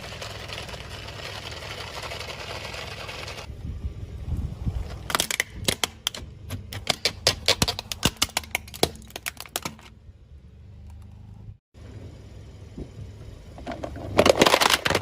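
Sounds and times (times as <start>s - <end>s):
low engine rumble: 0.0s - 7.2s, 9.8s - 15.0s
tyre crushing brittle objects: 14.0s - 15.0s.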